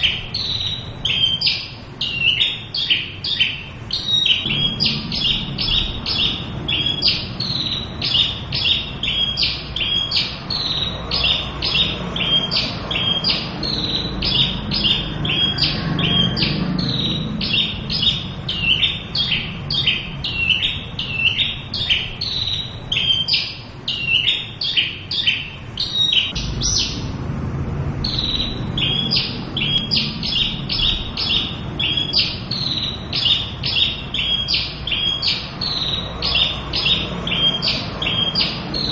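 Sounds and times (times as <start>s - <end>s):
low steady rumble: 0.0s - 24.0s, 25.5s - 37.9s
bird singing sharp high notes: 0.0s - 27.1s, 28.0s - 38.9s.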